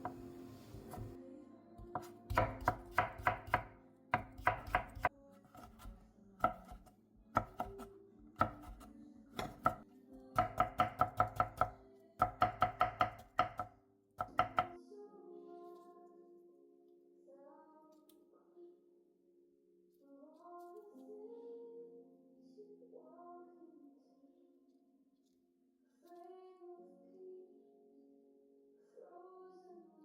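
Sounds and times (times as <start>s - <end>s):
knife chopping on cutting board: 0.8s - 1.1s, 1.9s - 9.8s, 10.4s - 14.7s.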